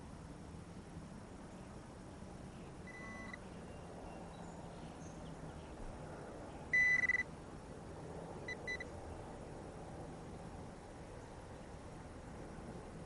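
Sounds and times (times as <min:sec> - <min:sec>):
metal detector beeping: 0:02.9 - 0:03.4, 0:06.7 - 0:07.3, 0:08.5 - 0:08.9.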